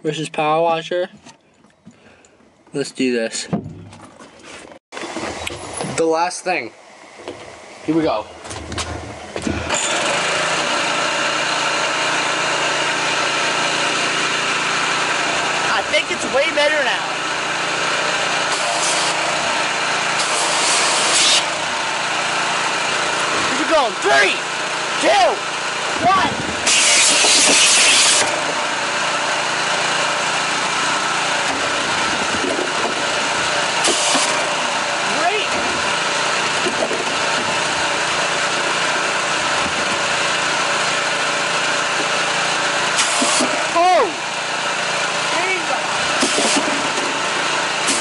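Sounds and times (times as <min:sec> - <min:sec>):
pressure washer engine drone: 0:05.0 - 0:48.0
water jet hissing: 0:20.2 - 0:21.5, 0:26.6 - 0:28.3, 0:33.8 - 0:34.5, 0:43.0 - 0:43.6, 0:46.2 - 0:46.8.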